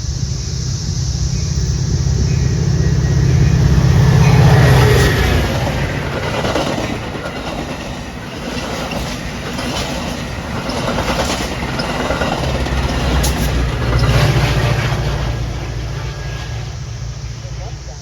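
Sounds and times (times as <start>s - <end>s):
low rumble: 0.0s - 6.4s
train rolling noise: 0.0s - 18.0s
train wheels clicking: 0.0s - 18.0s.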